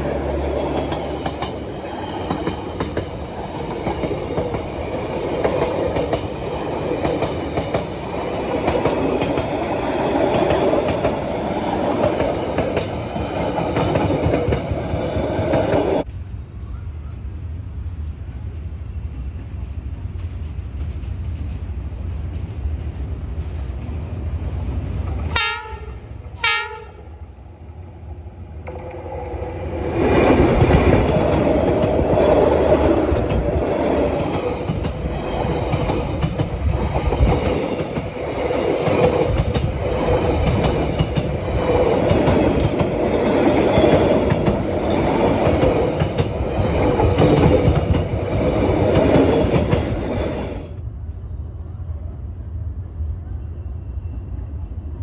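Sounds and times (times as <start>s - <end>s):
train wheels rumbling on rails: 0.0s - 16.4s, 17.3s - 53.4s
locomotive horn blasts: 25.3s - 27.1s.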